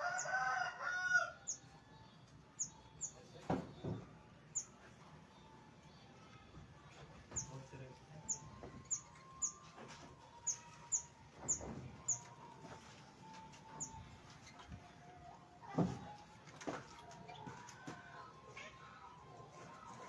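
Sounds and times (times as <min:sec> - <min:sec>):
small birds chirping: 0:01.4 - 0:15.0.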